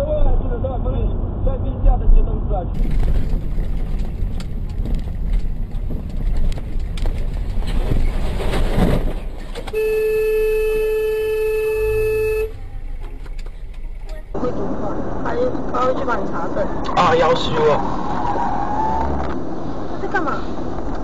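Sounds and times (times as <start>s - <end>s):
vehicle road noise: 0.0s - 21.0s
car horn blast: 9.7s - 12.6s.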